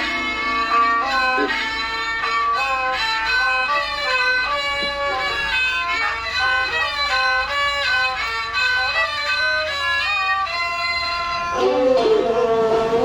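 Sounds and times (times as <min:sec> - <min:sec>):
low loud sound: 0:00.0 - 0:05.3
bowed fiddle melody: 0:00.0 - 0:13.0.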